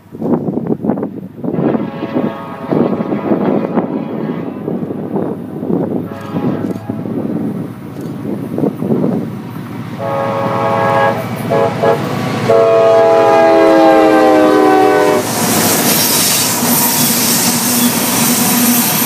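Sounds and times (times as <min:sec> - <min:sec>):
train wheels on rails: 0:00.0 - 0:19.0
locomotive air horn blasts: 0:01.5 - 0:05.2, 0:06.0 - 0:07.3, 0:10.0 - 0:15.4.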